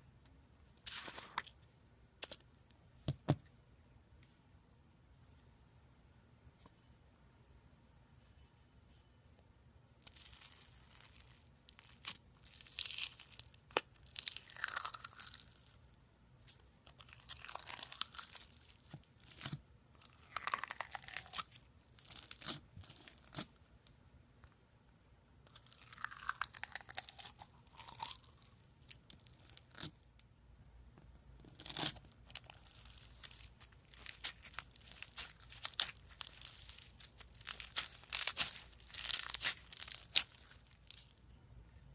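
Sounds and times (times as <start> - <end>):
slime squeezed by hand crackling: 31.6 - 41.2.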